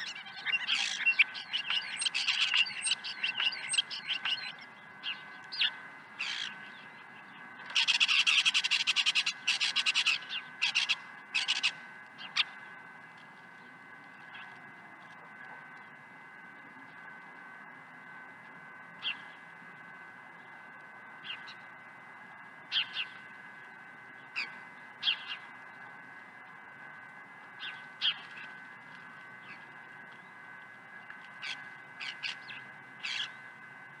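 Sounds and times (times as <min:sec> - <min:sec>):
birds giving harsh calls: 0:00.0 - 0:12.8, 0:22.7 - 0:25.7, 0:27.5 - 0:30.6, 0:31.3 - 0:33.5
faint high whine: 0:00.0 - 0:34.0.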